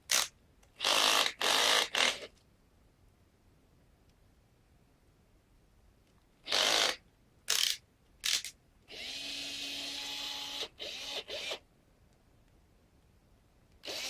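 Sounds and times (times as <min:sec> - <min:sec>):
electric drill motor whine: 0:08.9 - 0:11.6.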